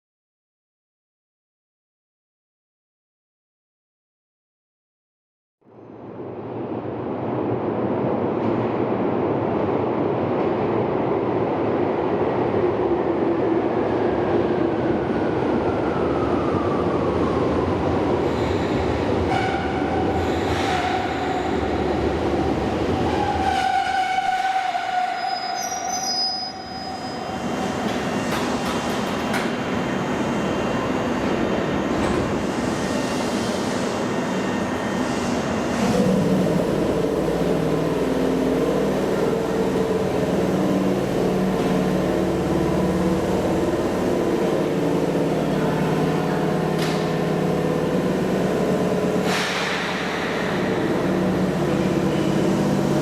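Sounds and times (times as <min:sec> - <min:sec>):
electric train rumbling: 0:05.8 - 0:53.0
brake and wheel squeal: 0:23.6 - 0:27.5.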